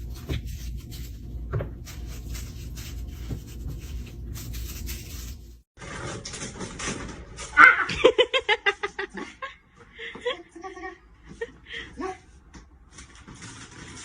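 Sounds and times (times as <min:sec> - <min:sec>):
rustling and scraping: 0:00.0 - 0:07.6, 0:12.8 - 0:14.0.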